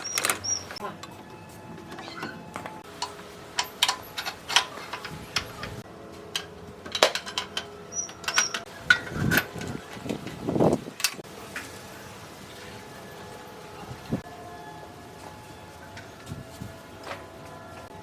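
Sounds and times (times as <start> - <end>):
metal tools clicking and clinking: 0.0 - 1.2, 1.9 - 9.7.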